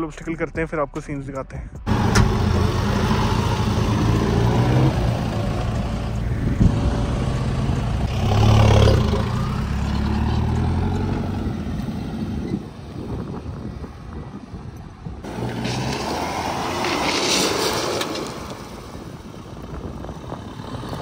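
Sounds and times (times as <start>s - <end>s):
suv engine running: 1.8s - 8.1s.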